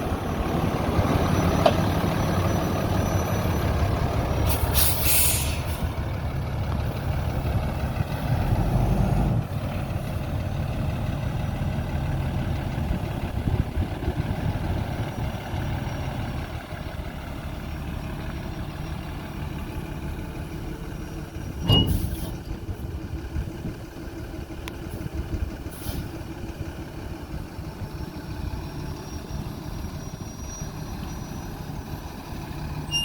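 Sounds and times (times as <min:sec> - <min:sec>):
diesel truck engine idling: 0:00.0 - 0:33.0.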